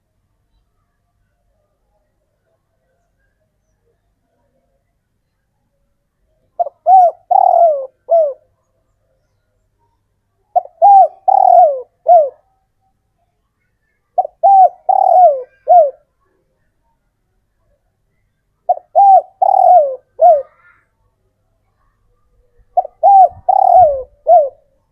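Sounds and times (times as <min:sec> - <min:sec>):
dove cooing: 0:06.6 - 0:08.5, 0:10.5 - 0:12.4, 0:14.2 - 0:16.1, 0:18.7 - 0:20.7, 0:22.7 - 0:24.8.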